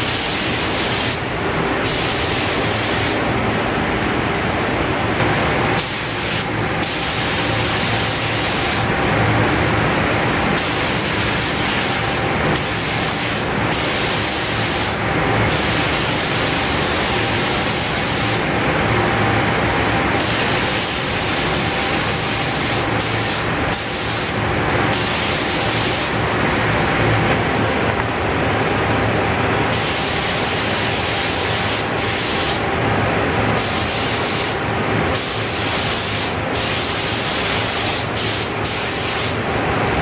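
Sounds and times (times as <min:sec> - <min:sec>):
paint spray hiss: 0:05.8 - 0:08.9, 0:22.1 - 0:24.4, 0:29.7 - 0:32.6, 0:33.6 - 0:34.6, 0:35.2 - 0:39.4.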